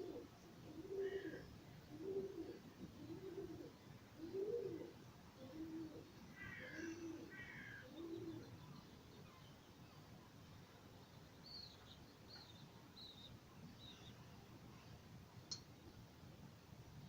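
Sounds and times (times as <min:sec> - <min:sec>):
bird cooing: 0:00.0 - 0:08.6.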